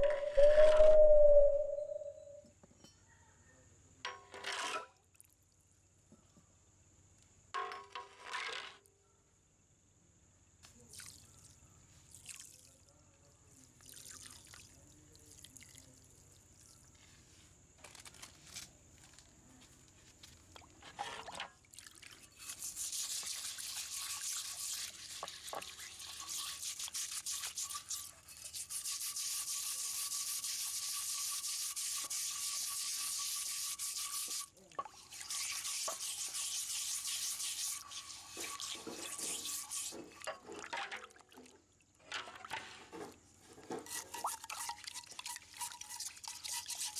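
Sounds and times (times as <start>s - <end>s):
water drips and splashes: 10.6s - 17.1s, 20.4s - 42.7s, 43.8s - 46.9s
wire brush scrubbing metal: 22.2s - 40.3s, 43.6s - 46.9s.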